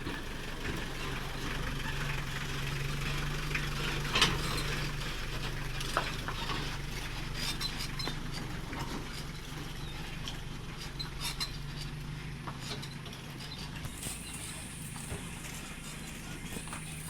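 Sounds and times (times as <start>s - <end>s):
engine humming: 0.0s - 17.0s
road noise: 0.0s - 17.0s.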